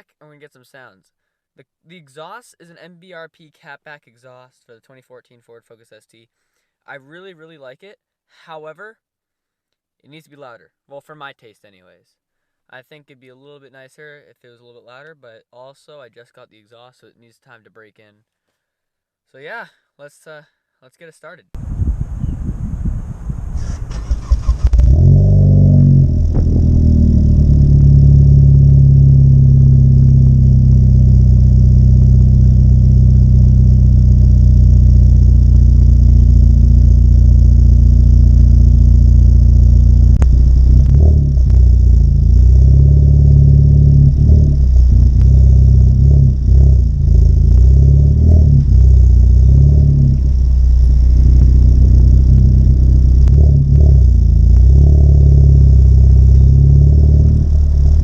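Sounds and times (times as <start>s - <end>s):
car engine starting and idling: 23.5s - 58.0s.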